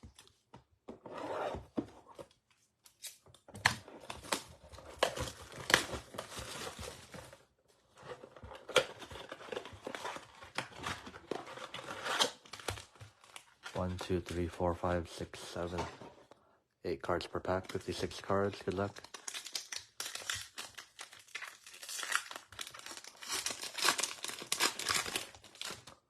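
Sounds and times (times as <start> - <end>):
card pack wrappers tearing: 17.4 - 26.0.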